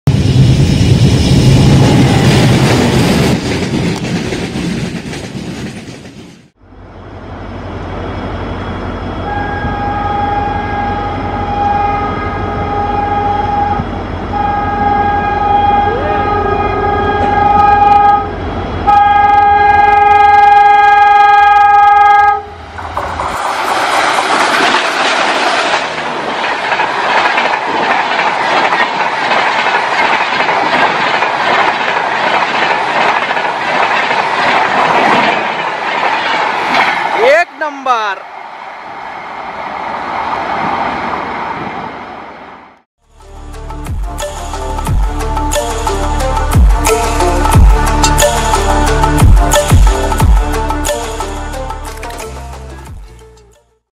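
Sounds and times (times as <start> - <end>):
diesel locomotive engine rumble: 0.1 - 53.6
train rumbling past: 0.1 - 53.6
train wheels clattering over rails: 2.1 - 6.6, 22.7 - 37.2
train horn blasts: 9.2 - 22.7.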